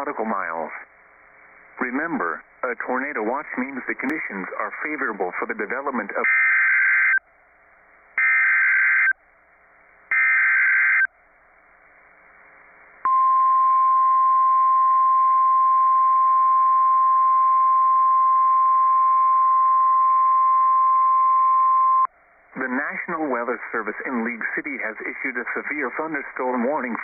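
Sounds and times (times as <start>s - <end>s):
steady warning alarm tone: 6.2s - 7.2s, 8.2s - 9.2s, 10.1s - 11.1s
harsh buzzing data bursts: 8.1s - 9.2s, 10.1s - 11.1s.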